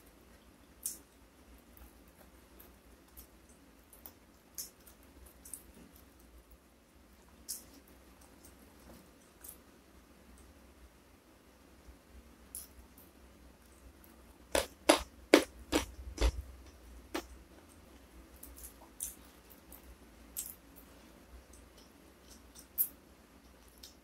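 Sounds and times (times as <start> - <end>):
person chewing food: 14.5 - 24.0.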